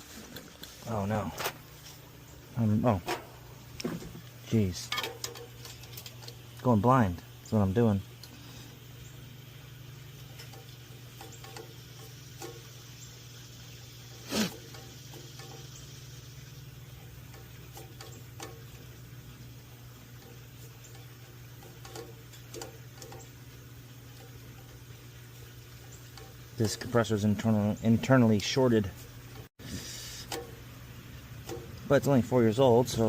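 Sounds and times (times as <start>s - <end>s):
steady low hum: 0.0s - 33.0s
hand tools clicking on metal: 10.2s - 12.8s, 17.0s - 19.0s, 20.2s - 23.4s.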